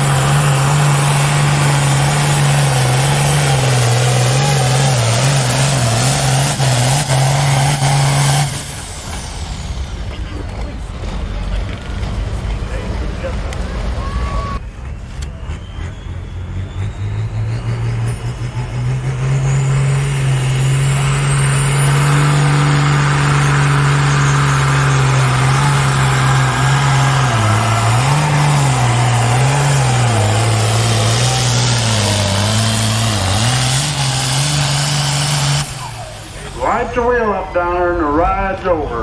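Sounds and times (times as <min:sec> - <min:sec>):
tractor diesel engine at full power: 0:00.0 - 0:39.0
turbo whistle: 0:14.0 - 0:17.6.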